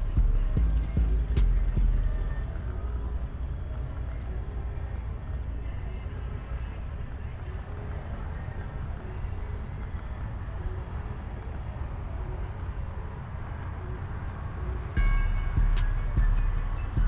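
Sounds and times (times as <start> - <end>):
music with deep bass and hi-hat: 0.0 - 3.0, 15.0 - 17.0
vehicle engine rumble: 0.0 - 17.0.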